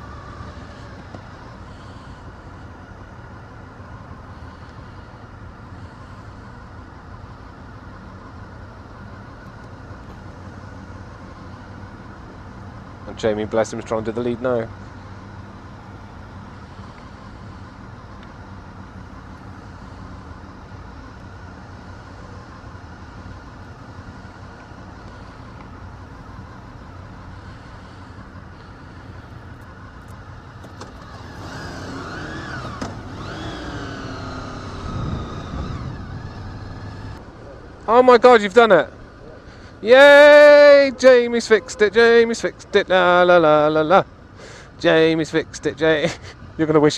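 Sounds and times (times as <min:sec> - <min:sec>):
motorcycle engine running: 0:14.8 - 0:37.6.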